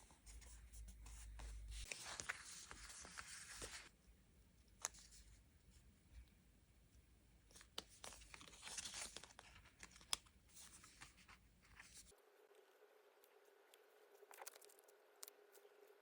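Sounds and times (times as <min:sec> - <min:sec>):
paper and plastic rustling: 0:07.5 - 0:12.1.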